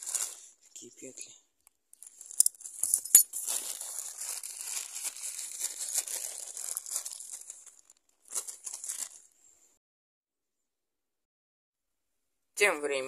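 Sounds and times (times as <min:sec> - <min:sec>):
bag crinkling: 0:00.0 - 0:00.6, 0:02.0 - 0:09.4.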